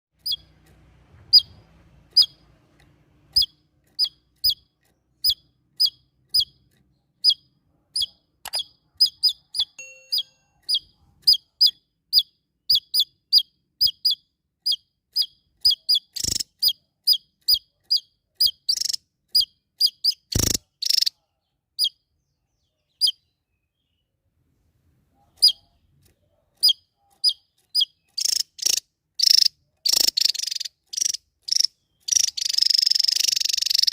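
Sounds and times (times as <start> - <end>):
songbird chirping: 0.2 - 33.9
harsh bird calls: 26.6 - 33.9.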